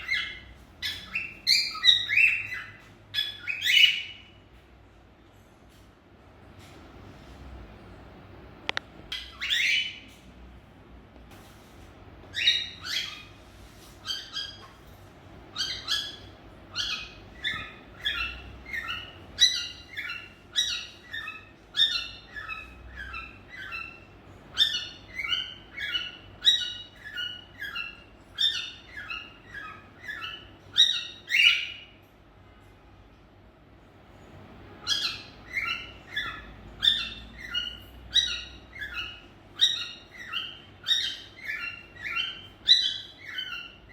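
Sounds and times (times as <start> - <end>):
cockatiels chirping: 0.0 - 4.4, 9.1 - 10.2, 12.2 - 32.0, 34.8 - 43.9.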